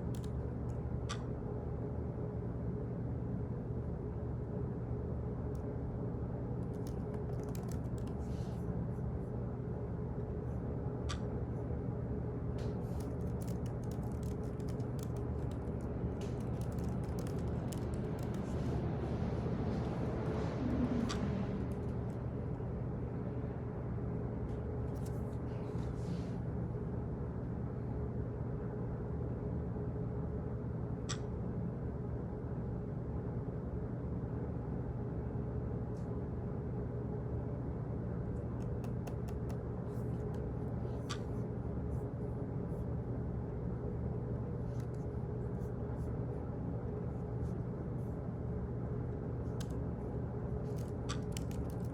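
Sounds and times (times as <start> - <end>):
keyboard typing clicks: 0.0 - 0.4, 6.6 - 8.2, 12.9 - 18.8, 38.5 - 40.4, 50.7 - 51.9
low hum: 0.0 - 51.9.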